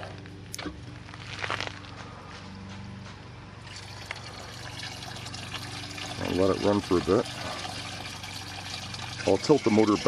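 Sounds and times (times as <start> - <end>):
electric pump humming: 3.0 - 10.0
fluid trickling into basin: 3.6 - 10.0.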